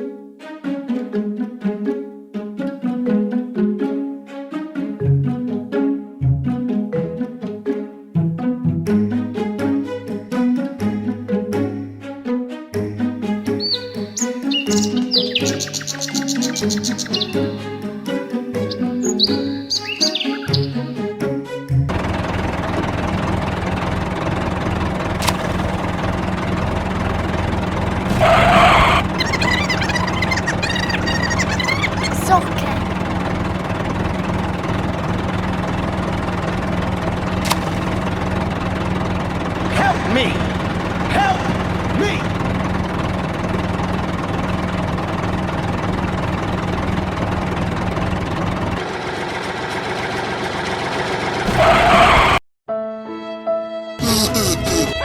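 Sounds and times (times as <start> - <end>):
heavy vehicle engine idling: 21.9 - 52.4
sharp click: 25.2 - 26.0, 37.5 - 38.3
rushing burst: 28.0 - 30.7.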